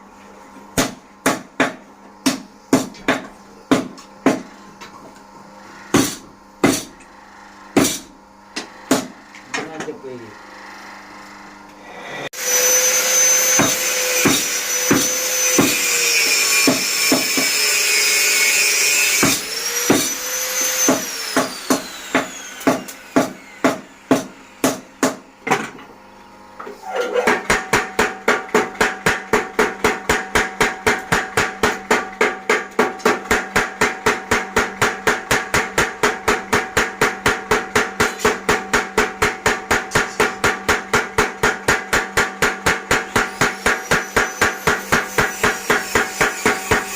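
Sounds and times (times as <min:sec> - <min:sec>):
whirring hissing machine whine: 0:00.0 - 0:26.9
motor hum: 0:00.2 - 0:27.4
power hammer striking steel: 0:05.9 - 0:07.0, 0:07.7 - 0:09.7, 0:12.5 - 0:25.2, 0:27.4 - 0:46.9.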